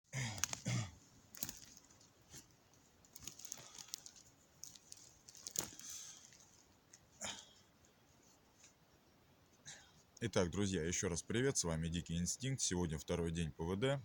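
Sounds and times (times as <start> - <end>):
sharp crackles and rustles: 0.3 - 7.2.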